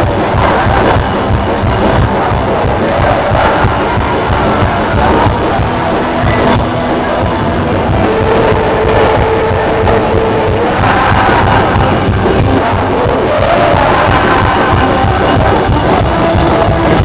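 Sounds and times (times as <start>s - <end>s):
live rock band music: 0.0s - 17.0s.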